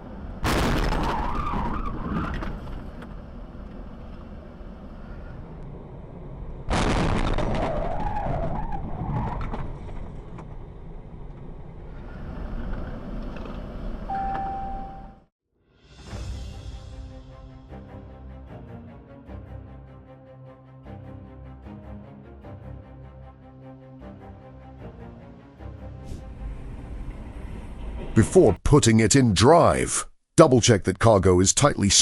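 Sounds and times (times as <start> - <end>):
short steady beep: 14.1 - 15.3.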